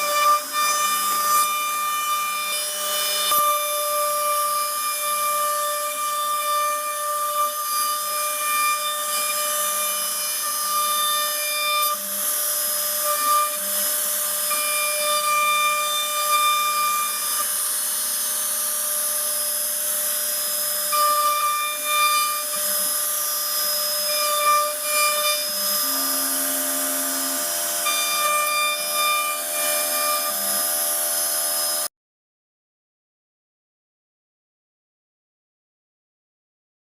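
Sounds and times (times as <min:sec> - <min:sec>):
router spindle whine: 0:00.0 - 0:31.9
wood cutting hiss: 0:17.0 - 0:31.9.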